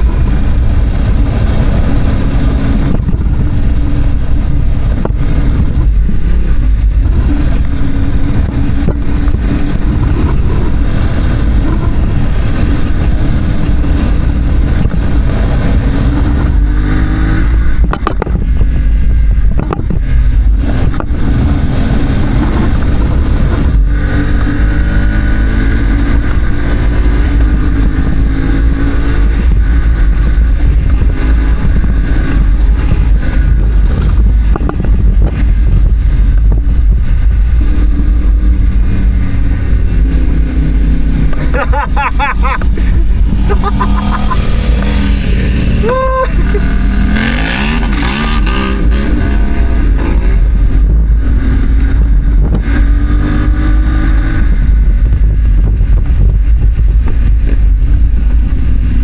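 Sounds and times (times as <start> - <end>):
motorcycle engine revving: 0.0 - 59.0
wind buffeting: 0.0 - 59.0.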